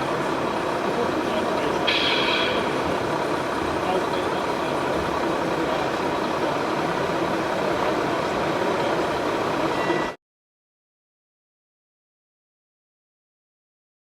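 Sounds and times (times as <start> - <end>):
truck engine din: 0.0 - 9.7.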